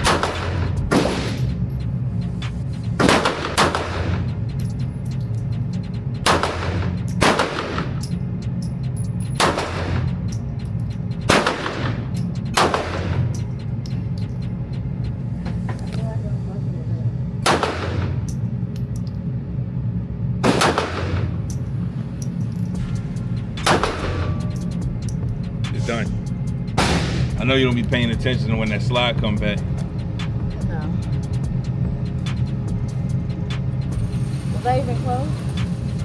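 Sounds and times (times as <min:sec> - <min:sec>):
pistol shots ringing: 0:00.0 - 0:01.8, 0:03.0 - 0:05.4, 0:06.2 - 0:08.2, 0:09.3 - 0:14.4, 0:17.4 - 0:19.2, 0:20.4 - 0:21.7, 0:23.6 - 0:25.2, 0:26.8 - 0:27.5
steady low hum: 0:00.0 - 0:36.0.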